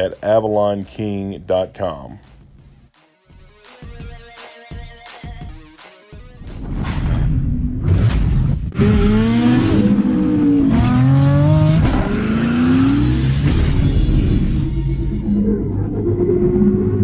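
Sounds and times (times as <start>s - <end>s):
car engine revving: 7.9s - 17.0s
sharp hit: 11.8s - 15.2s.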